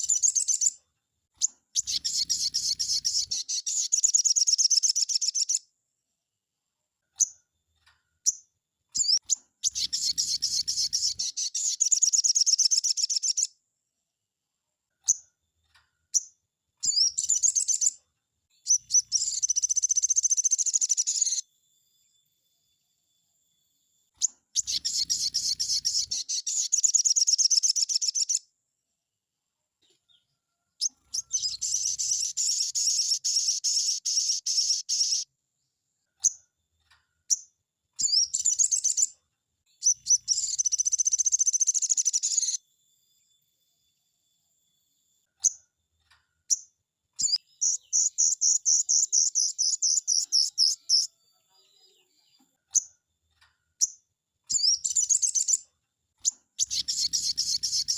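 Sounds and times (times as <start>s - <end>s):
bird rattling trills: 56.6s - 57.9s.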